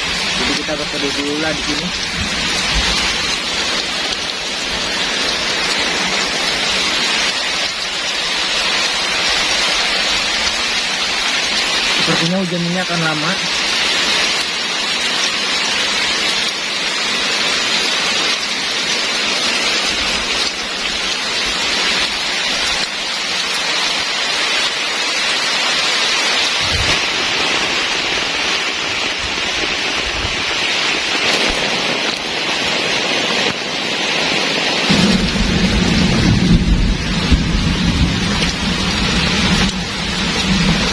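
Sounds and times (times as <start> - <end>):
heavy rain pouring: 0.0 - 40.9
low rumble: 34.9 - 40.9.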